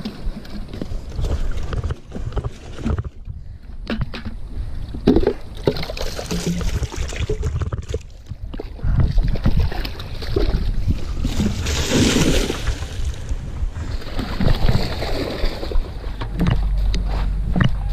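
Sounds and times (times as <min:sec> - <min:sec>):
water splashing into stream: 0:09.3 - 0:13.2.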